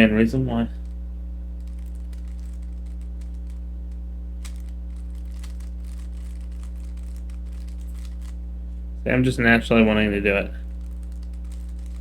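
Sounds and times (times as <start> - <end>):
low electrical hum: 0.0 - 12.0
rubik's cube plastic clicks: 1.6 - 8.4, 10.8 - 12.0.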